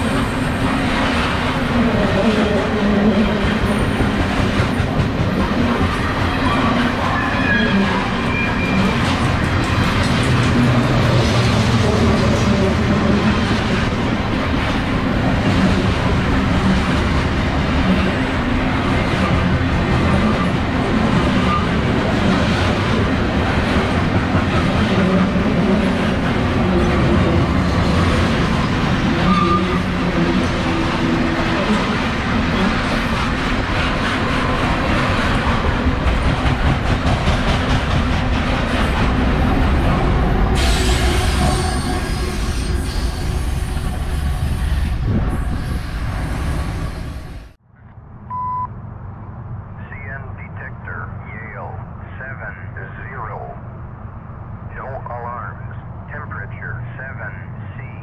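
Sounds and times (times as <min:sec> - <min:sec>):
freight train wheels rumbling on rails: 0:00.0 - 0:47.6
short high beep: 0:48.3 - 0:48.7.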